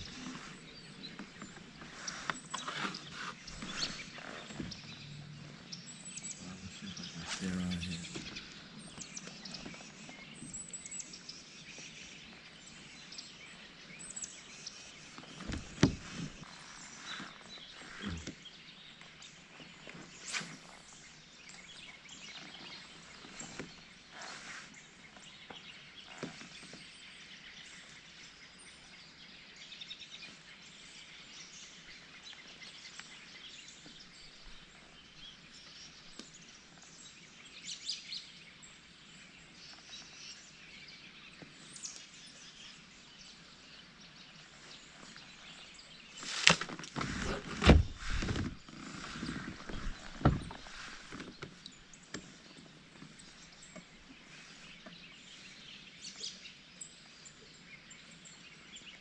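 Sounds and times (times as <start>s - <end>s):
faint bird calls: 0.0s - 9.9s, 15.2s - 18.7s.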